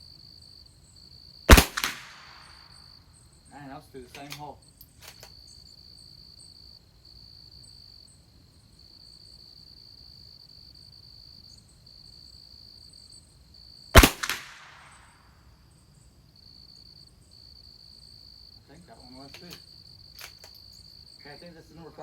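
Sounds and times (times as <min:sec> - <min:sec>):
crickets chirring: 0:00.0 - 0:22.0
rifle shot with echo: 0:01.5 - 0:02.6, 0:14.0 - 0:15.0.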